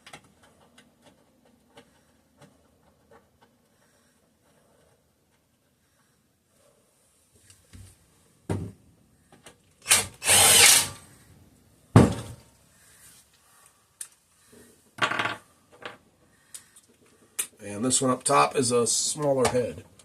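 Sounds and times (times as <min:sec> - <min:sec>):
power drill driving bolts: 0:09.8 - 0:11.1.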